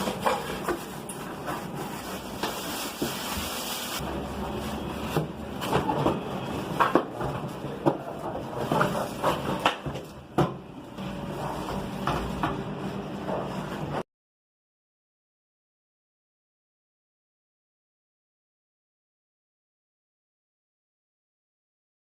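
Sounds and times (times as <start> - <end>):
microwave and packaging being handled: 0.0 - 14.0.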